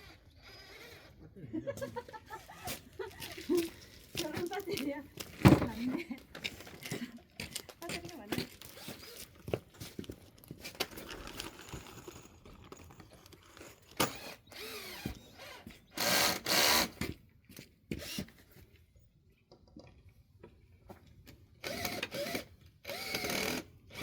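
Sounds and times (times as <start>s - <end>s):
cordless drill driving screws: 0.0s - 1.2s, 8.6s - 9.5s, 13.4s - 17.2s, 17.9s - 18.4s, 21.6s - 24.0s.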